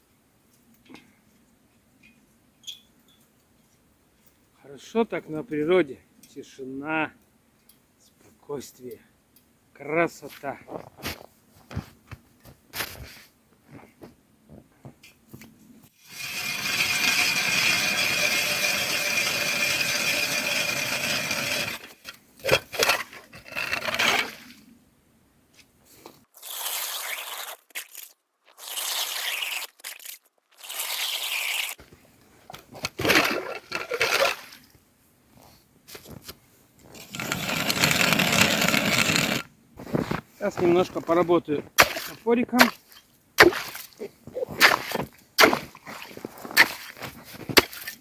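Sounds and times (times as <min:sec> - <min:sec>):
scraping and grinding at ice: 0:16.0 - 0:24.6, 0:26.3 - 0:31.9, 0:32.5 - 0:34.6, 0:35.4 - 0:48.0.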